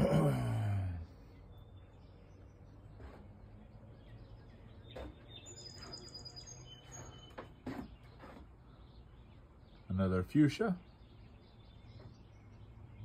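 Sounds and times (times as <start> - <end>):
small birds chirping: 0.0 - 13.0
soft knocks or rustles: 6.9 - 8.6.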